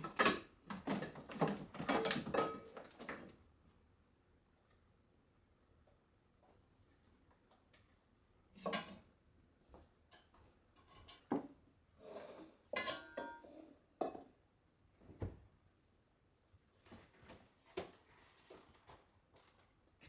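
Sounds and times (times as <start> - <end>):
dishes and cutlery clinking: 1.8 - 3.3, 12.1 - 14.3.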